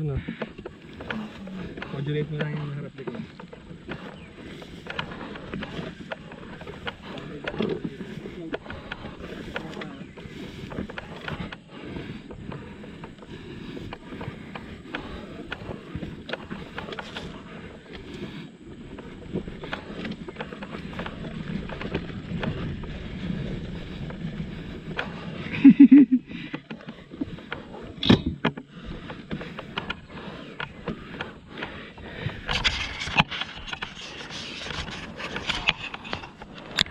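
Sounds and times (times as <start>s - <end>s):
dirt bike low rumble: 0.0s - 36.9s
knocks rattles and scrapes: 26.5s - 36.9s.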